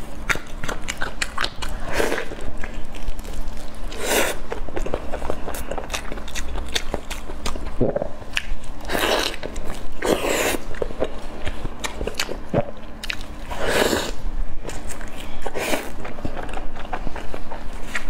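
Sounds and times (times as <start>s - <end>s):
biting and chewing food: 0.0s - 18.0s
wet mouth noise: 7.4s - 8.6s.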